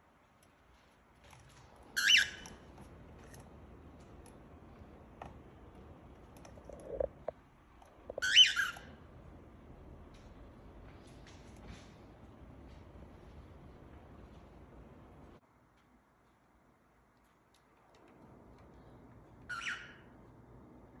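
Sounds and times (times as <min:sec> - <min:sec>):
cockatiel squawking: 0:02.0 - 0:02.6, 0:08.2 - 0:08.9, 0:19.5 - 0:20.1.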